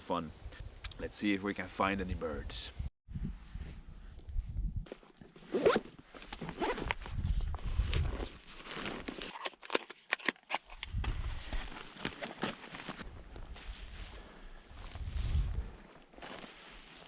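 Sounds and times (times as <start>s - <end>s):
footsteps in undergrowth: 10.7s - 17.0s.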